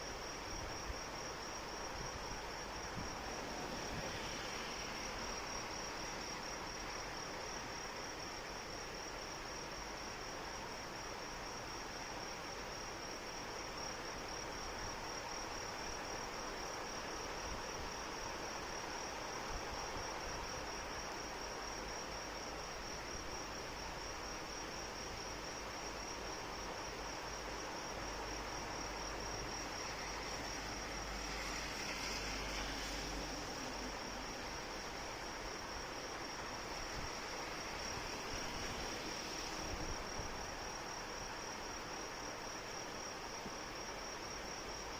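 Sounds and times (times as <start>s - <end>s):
crickets chirping: 0.0s - 44.9s
rain hissing: 2.8s - 7.2s, 29.6s - 41.1s.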